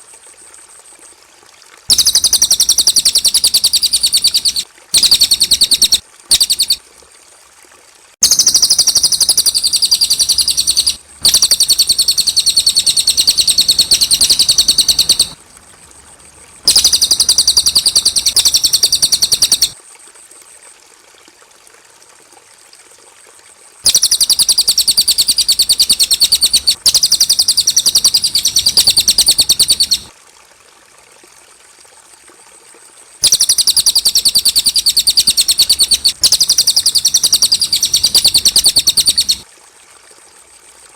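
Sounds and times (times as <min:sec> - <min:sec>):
bird chattering trill: 0:01.9 - 0:06.8, 0:08.2 - 0:15.4, 0:16.6 - 0:19.8, 0:23.9 - 0:30.1, 0:33.2 - 0:39.4.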